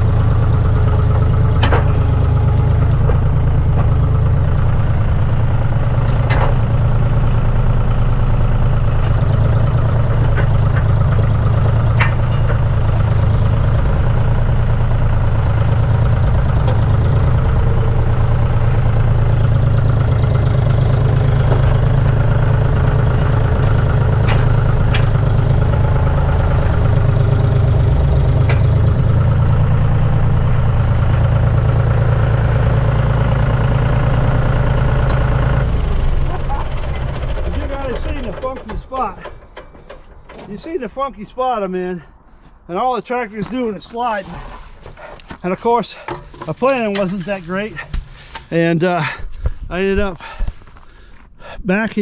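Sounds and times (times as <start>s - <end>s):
tractor engine running: 0.0s - 52.0s
short sharp clanks: 10.2s - 14.2s, 36.0s - 42.7s.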